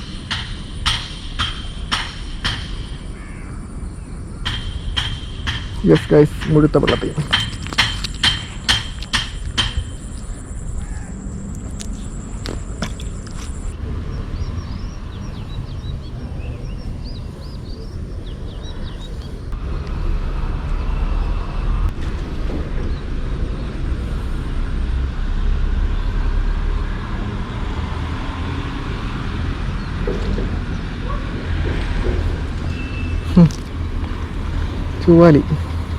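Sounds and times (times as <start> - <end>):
bird chirps: 2.8 - 19.5
steady low rumble: 30.7 - 35.9.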